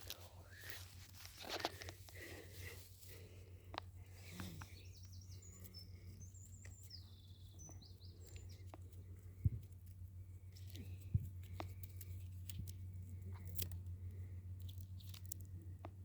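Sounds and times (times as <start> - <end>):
steady low hum: 0.0 - 16.0
bird song with chirps and trills: 4.0 - 9.8.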